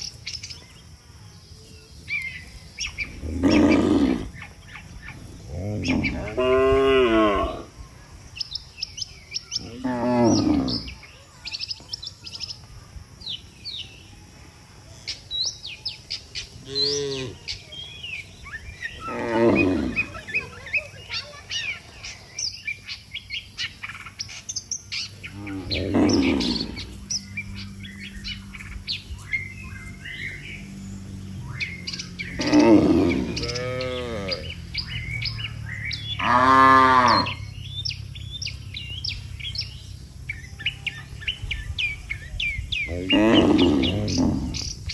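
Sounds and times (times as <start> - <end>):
small birds chirping: 0.0 - 44.9
cattle mooing: 3.1 - 4.4, 5.4 - 7.7, 16.7 - 17.5, 19.0 - 20.3, 25.3 - 27.1, 32.2 - 35.5, 36.1 - 37.6, 42.9 - 44.7.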